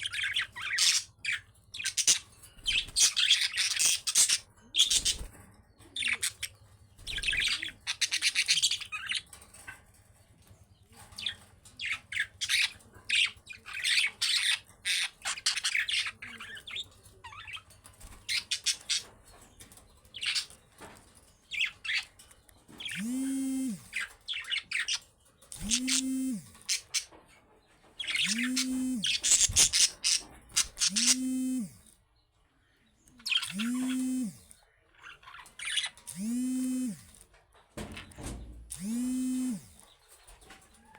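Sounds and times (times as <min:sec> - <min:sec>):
budgerigars chirping and warbling: 0:00.0 - 0:10.0, 0:10.7 - 0:32.0, 0:32.8 - 0:37.3, 0:37.9 - 0:40.9
low buzzing with high chirring: 0:22.9 - 0:24.2, 0:25.5 - 0:27.0, 0:28.1 - 0:32.0, 0:33.3 - 0:34.6, 0:35.6 - 0:37.2, 0:38.3 - 0:39.8.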